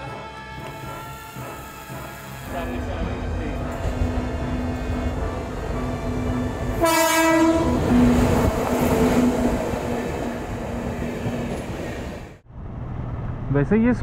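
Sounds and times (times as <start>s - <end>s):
train horn blast: 0.0s - 5.0s, 6.6s - 9.6s
train wheels rumbling on track: 0.0s - 14.0s.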